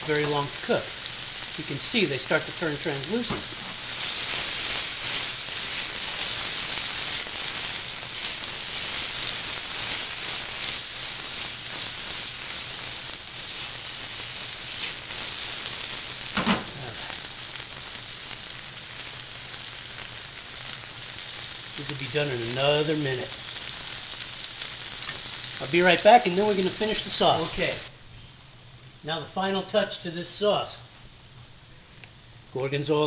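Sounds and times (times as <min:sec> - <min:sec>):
artichokes sizzling in oil: 0:00.0 - 0:33.0.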